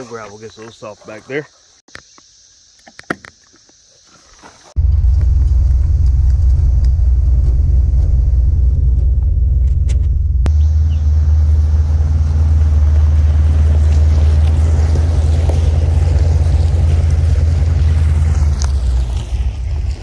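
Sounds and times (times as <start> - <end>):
pickup truck engine rumble: 4.8 - 20.0.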